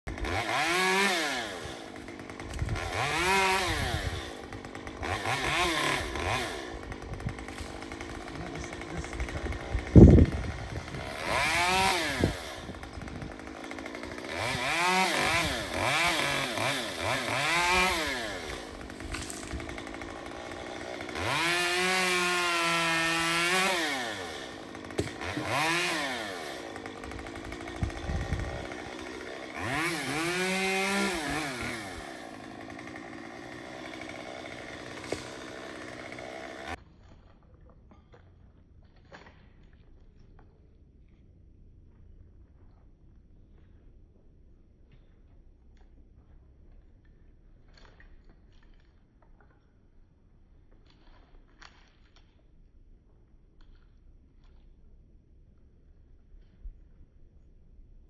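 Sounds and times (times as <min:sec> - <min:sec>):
chainsaw revving while cutting: 0:00.1 - 0:36.8.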